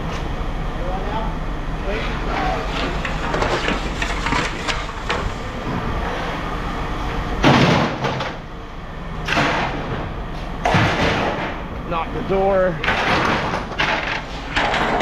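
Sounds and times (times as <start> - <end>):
low machinery hum: 0.0 - 15.0
scrap metal thrown down: 2.3 - 5.9, 7.4 - 8.4, 9.3 - 11.6, 12.8 - 15.0.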